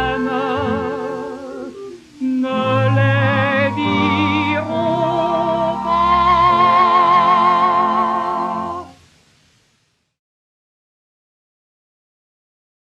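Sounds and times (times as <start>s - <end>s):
orchestral chords with vibrato: 0.0s - 9.0s.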